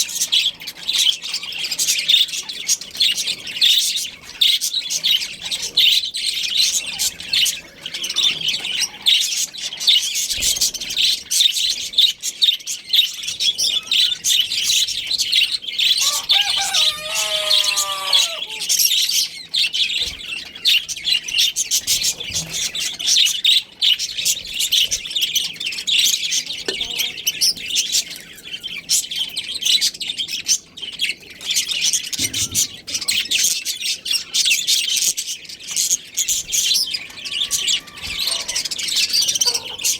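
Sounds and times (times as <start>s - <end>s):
budgerigars chirping: 0.0s - 39.9s
lower bird call: 16.0s - 18.9s.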